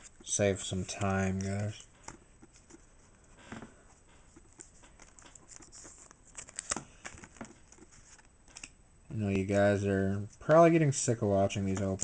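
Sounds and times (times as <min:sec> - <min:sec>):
cards sliding and rustling: 0:00.0 - 0:08.7.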